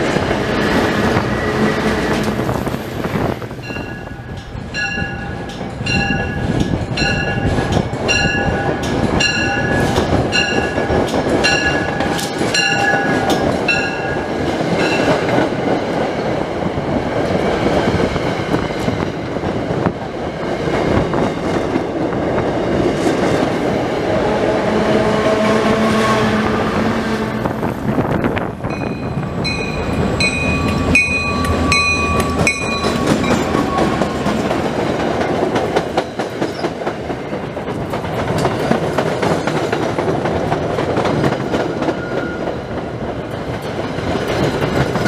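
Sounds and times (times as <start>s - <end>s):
train rumble and rail clatter: 0.0s - 45.0s
crossing bell ringing: 3.6s - 15.4s, 28.6s - 34.4s.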